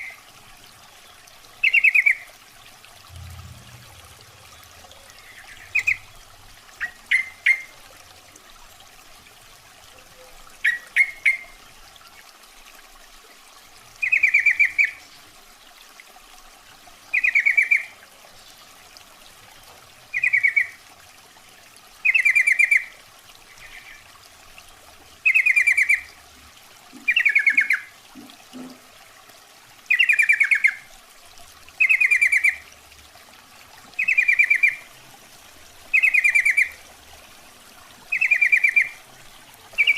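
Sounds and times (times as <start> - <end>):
bulbul chirping calls: 5.1 - 6.2, 27.1 - 27.9, 36.0 - 36.8, 38.1 - 39.0.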